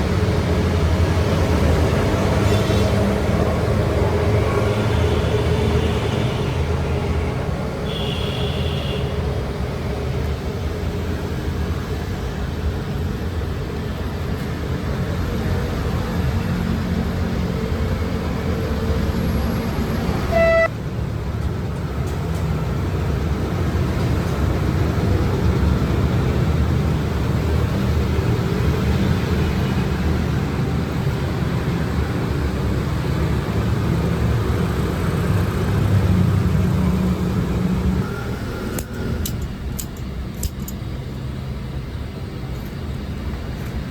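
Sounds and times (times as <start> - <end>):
short horn toot: 20.3 - 20.7.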